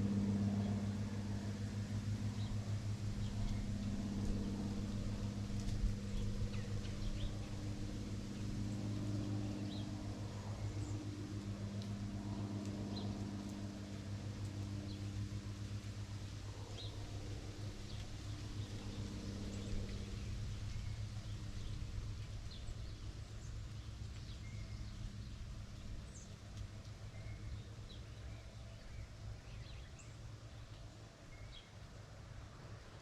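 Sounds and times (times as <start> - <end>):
birds chirping: 0.0 - 11.4
distant engine drone: 0.0 - 33.0.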